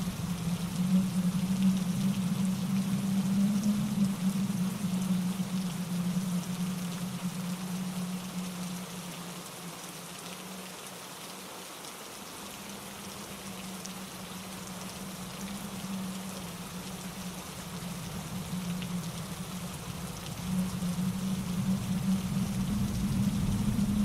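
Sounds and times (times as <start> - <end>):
low rumble: 0.0 - 8.8, 14.7 - 24.0
rain pattering on leaves: 0.0 - 24.0.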